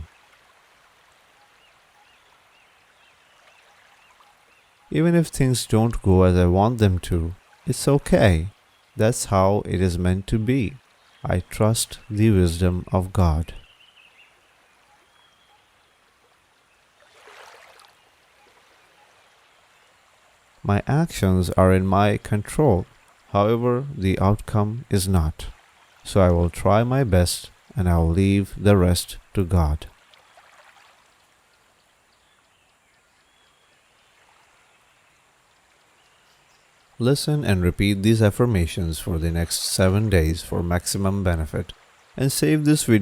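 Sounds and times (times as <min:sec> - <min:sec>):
water trickling: 0:00.0 - 0:09.3, 0:10.4 - 0:12.0, 0:13.5 - 0:20.7, 0:22.7 - 0:23.5, 0:25.4 - 0:26.2, 0:29.8 - 0:37.0
soft water-like hiss: 0:16.2 - 0:20.7.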